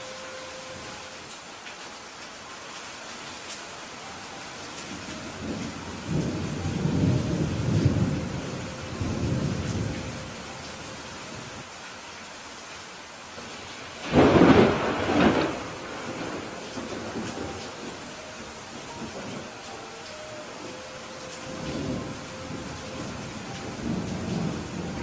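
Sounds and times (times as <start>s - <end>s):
rain falling: 0.0s - 25.0s
thunder rumbling: 5.1s - 10.7s, 14.0s - 25.0s
thunderclap: 14.0s - 17.9s.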